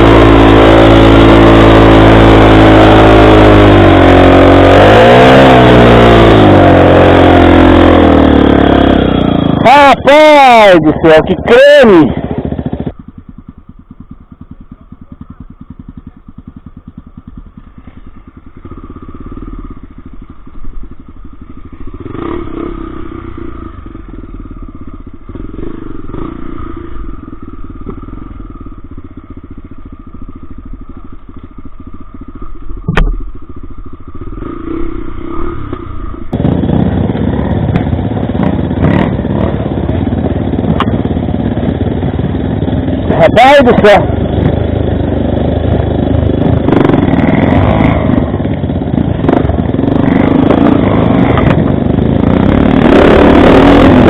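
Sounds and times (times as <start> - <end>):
off-road motorcycle engine: 0.0 - 54.0
sharp knock: 32.8 - 33.3.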